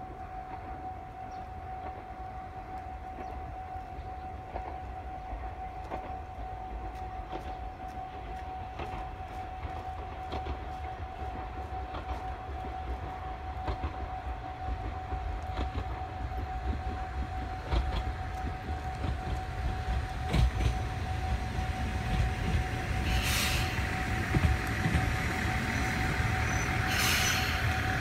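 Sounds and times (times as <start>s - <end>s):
diesel railcar rumble: 0.0s - 28.0s
brake squeal: 25.7s - 27.9s.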